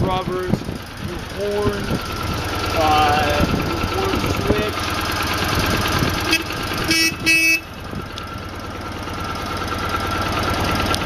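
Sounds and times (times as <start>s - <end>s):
motorcycle engine idling: 0.0s - 11.0s
motorcycle horn short beeps: 6.2s - 7.8s.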